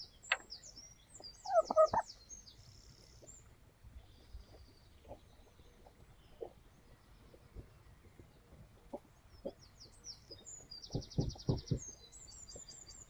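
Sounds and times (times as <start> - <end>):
hen calling: 1.3 - 2.2
taps and knocks: 10.9 - 12.0.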